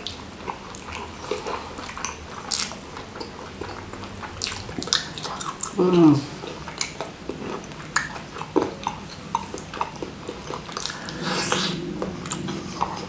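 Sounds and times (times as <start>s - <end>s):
close chewing: 0.0s - 13.0s
person breathing: 10.8s - 13.0s.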